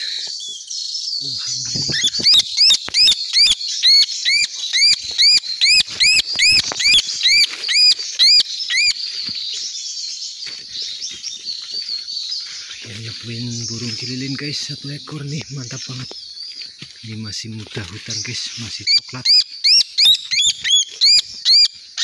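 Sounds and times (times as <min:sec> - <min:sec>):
bird squealing calls: 0:01.2 - 0:09.0, 0:18.2 - 0:22.0
rustling leaves: 0:01.4 - 0:22.0.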